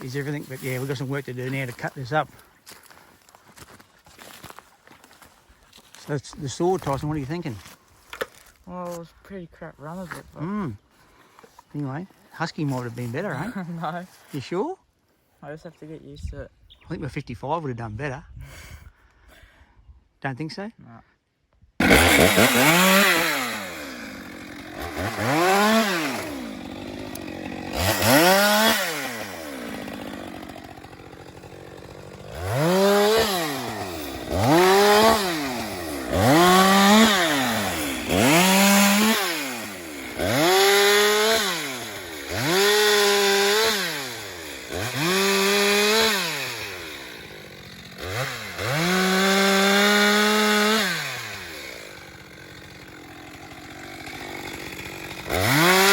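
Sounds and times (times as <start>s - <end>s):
chainsaw revving: 0.0s - 2.2s, 21.8s - 55.9s.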